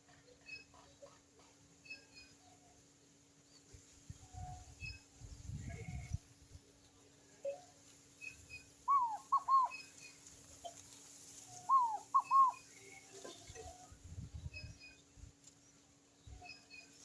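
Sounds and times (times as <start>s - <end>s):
faint small bird chirps: 7.4s - 17.0s
dove calling hollow notes: 8.9s - 9.9s, 11.6s - 12.7s.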